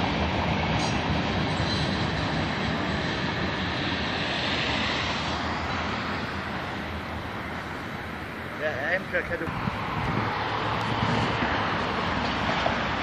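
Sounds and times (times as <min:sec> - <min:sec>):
freight train rumbling past: 0:00.0 - 0:13.0.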